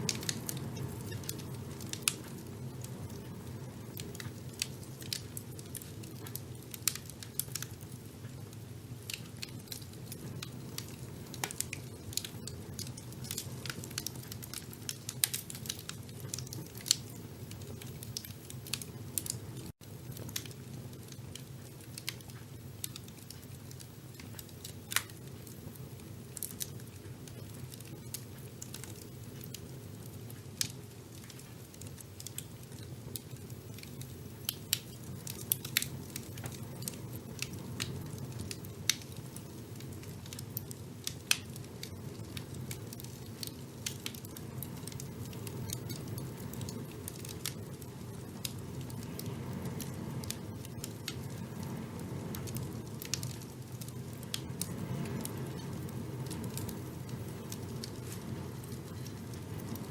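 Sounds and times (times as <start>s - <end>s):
fire burning: 0.0s - 59.9s
fire crackling and popping: 0.0s - 59.9s.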